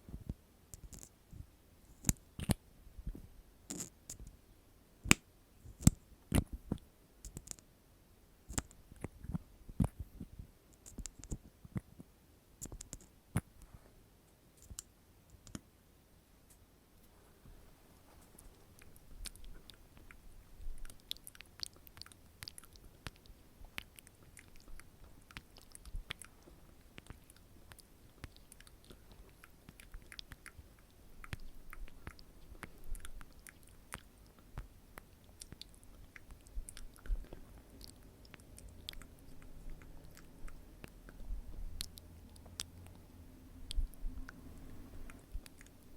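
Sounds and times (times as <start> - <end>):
soft asmr clicks: 5.1 - 7.6, 8.5 - 11.9, 12.6 - 13.7, 14.6 - 15.7, 20.8 - 45.9.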